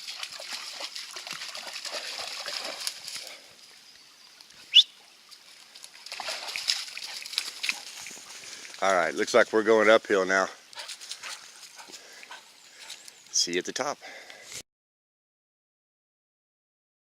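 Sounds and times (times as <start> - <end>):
dog splashing in water: 0.0 - 3.5, 5.3 - 8.9.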